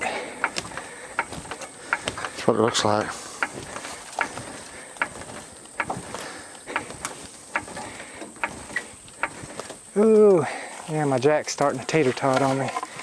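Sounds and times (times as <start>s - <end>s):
vehicle jack clicking: 0.0s - 9.6s.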